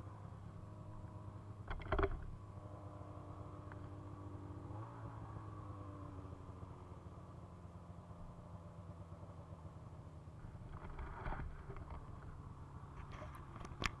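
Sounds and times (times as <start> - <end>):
brief clatter: 10.4 - 14.0.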